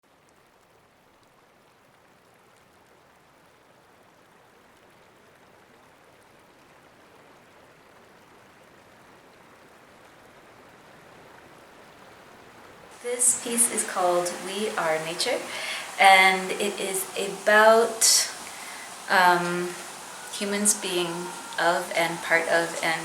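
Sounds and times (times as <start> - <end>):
faint steady rushing noise: 8.9 - 23.0.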